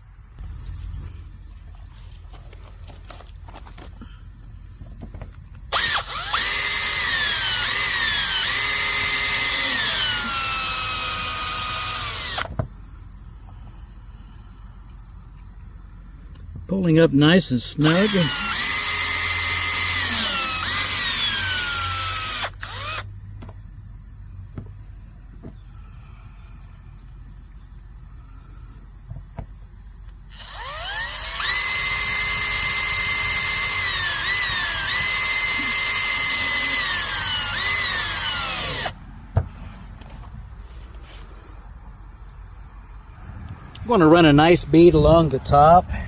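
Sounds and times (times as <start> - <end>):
power drill driving screws: 5.7 - 12.6, 17.8 - 23.1, 30.3 - 39.0.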